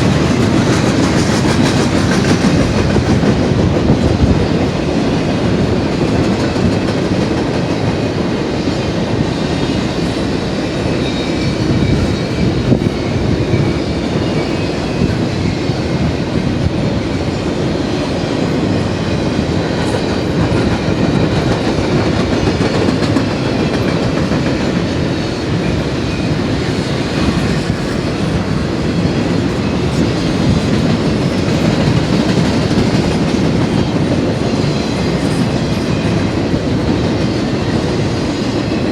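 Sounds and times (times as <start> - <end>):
clickety-clack of passing cars: 0.0 - 4.3, 19.8 - 25.0
train wheels rumbling on rail: 0.0 - 38.9.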